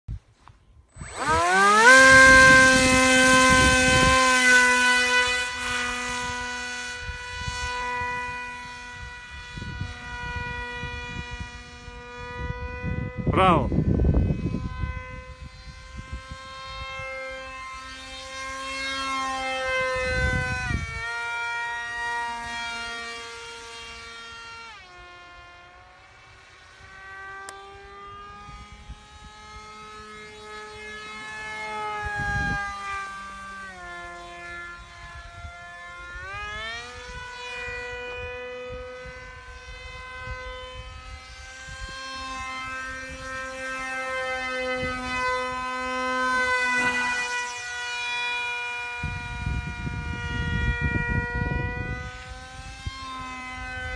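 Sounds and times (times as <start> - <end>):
electric motor whining: 0.4 - 53.9.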